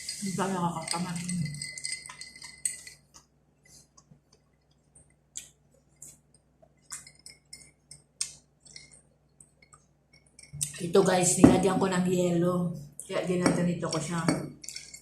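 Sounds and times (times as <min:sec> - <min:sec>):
tableware clicks and clinks: 0:00.0 - 0:03.1, 0:13.4 - 0:15.0.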